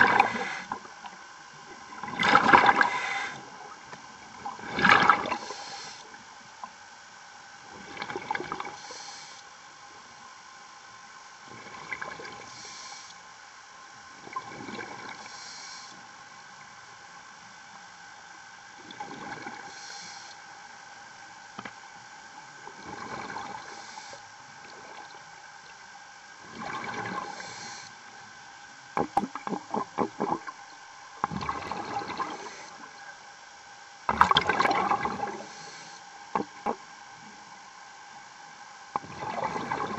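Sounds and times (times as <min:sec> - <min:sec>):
regulator inhalation hiss: 0:00.0 - 0:00.8, 0:02.8 - 0:03.5, 0:05.3 - 0:06.2, 0:08.7 - 0:09.5, 0:12.5 - 0:13.2, 0:15.2 - 0:16.1, 0:19.6 - 0:20.5, 0:23.6 - 0:24.3, 0:27.2 - 0:28.1, 0:32.2 - 0:32.9, 0:35.3 - 0:36.2
exhaled bubbles underwater: 0:00.0 - 0:01.0, 0:01.6 - 0:05.6, 0:07.7 - 0:08.8, 0:11.5 - 0:12.5, 0:14.2 - 0:15.3, 0:18.8 - 0:19.7, 0:22.6 - 0:24.0, 0:26.4 - 0:27.8, 0:28.9 - 0:30.6, 0:31.2 - 0:33.0, 0:34.1 - 0:35.6, 0:36.3 - 0:36.9, 0:38.9 - 0:39.9.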